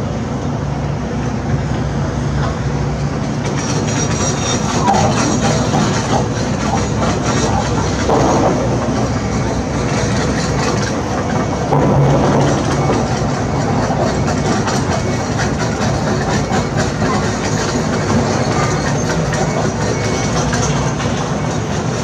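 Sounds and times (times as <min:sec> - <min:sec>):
diesel engine running: 0:00.6 - 0:22.0
metal clanking rattle: 0:04.6 - 0:19.6.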